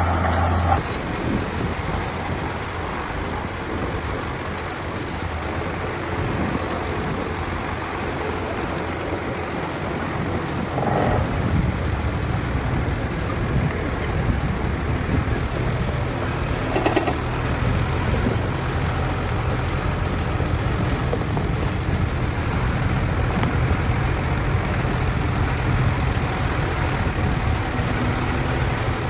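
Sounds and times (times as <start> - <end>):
heavy diesel machinery running: 0.0 - 29.0.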